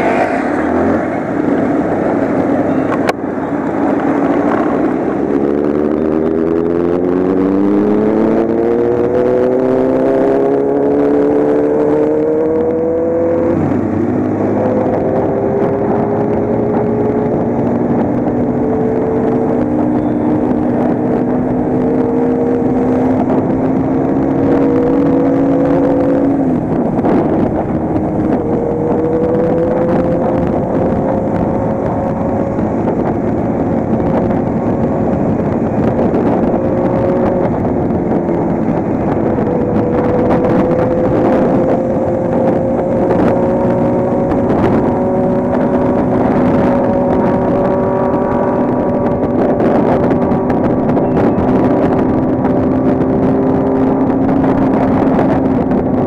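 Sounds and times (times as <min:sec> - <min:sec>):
motorcycle engine cruising: 0:00.0 - 0:56.0
wind rushing: 0:00.0 - 0:56.0.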